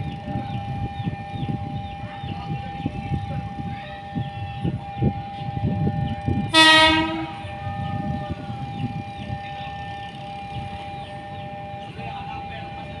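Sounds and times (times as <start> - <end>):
train rumbling on rails: 0.0 - 13.0
train horn blast: 6.5 - 8.0.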